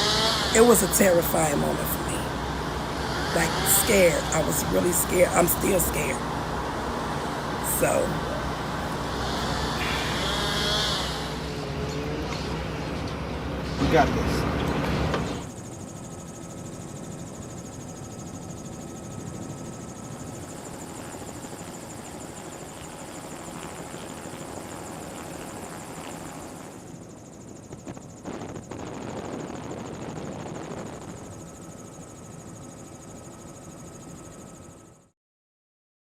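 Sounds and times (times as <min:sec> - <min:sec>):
mechanical drone with high whine: 0:00.0 - 0:35.1.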